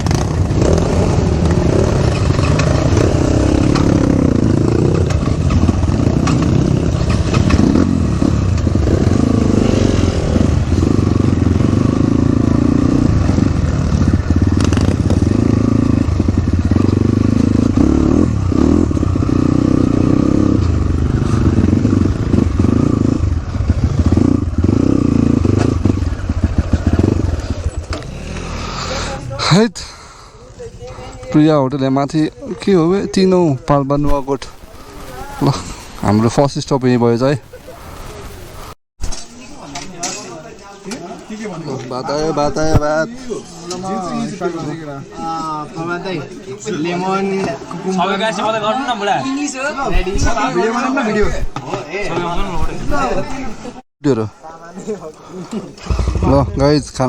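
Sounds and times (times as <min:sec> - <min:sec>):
bike rattling over bumps: 0:00.0 - 0:28.6
dirt bike engine revving: 0:00.0 - 0:29.5, 0:55.6 - 0:57.0.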